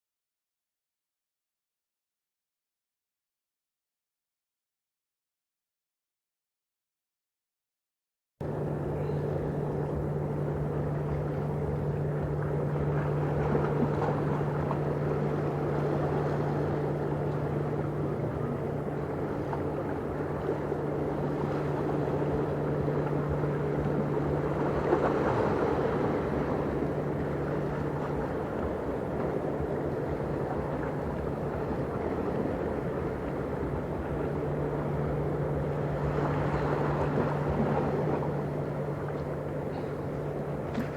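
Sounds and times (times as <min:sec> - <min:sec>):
ship engines droning: 0:08.4 - 0:40.9.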